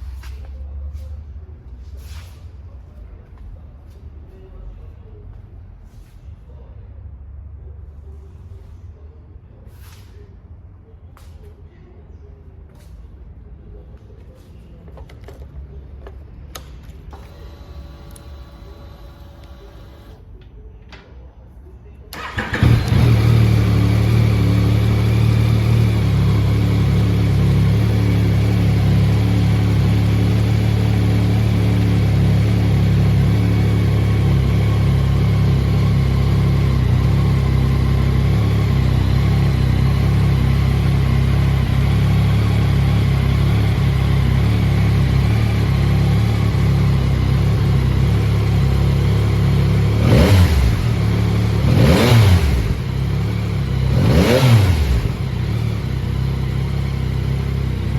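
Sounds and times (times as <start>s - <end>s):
motorcycle engine idling and revving: 17.2s - 20.2s, 22.2s - 57.9s.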